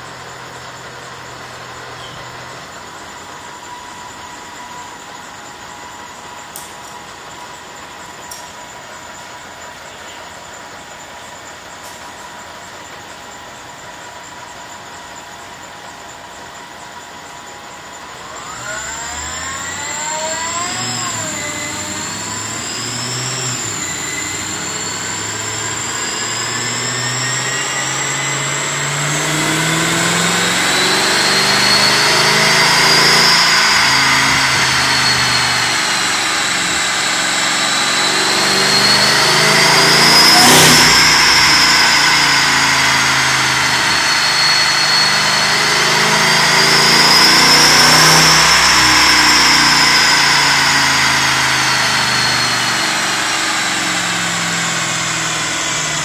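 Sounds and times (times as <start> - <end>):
supercharger whine: 0.0 - 56.0
car engine revving: 18.0 - 56.0.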